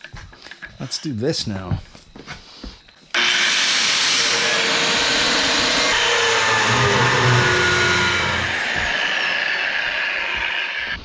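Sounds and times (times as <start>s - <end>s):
power grinder whining: 3.1s - 11.0s.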